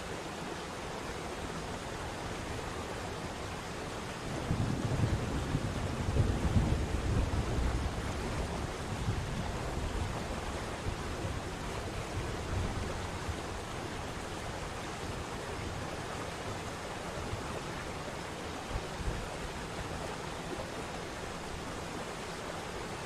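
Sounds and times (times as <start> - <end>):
wind on microphone: 4.3 - 15.9.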